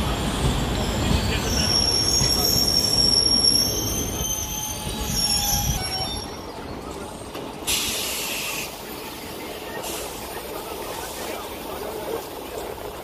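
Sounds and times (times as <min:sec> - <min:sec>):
train wheels and brakes squealing: 0:00.0 - 0:13.0
air hiss from brakes: 0:07.6 - 0:12.1.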